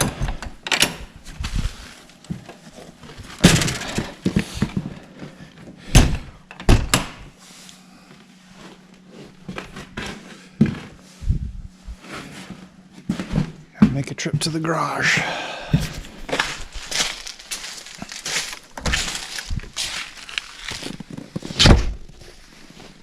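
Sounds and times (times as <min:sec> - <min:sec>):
rustling: 0:01.2 - 0:05.4, 0:16.3 - 0:23.0.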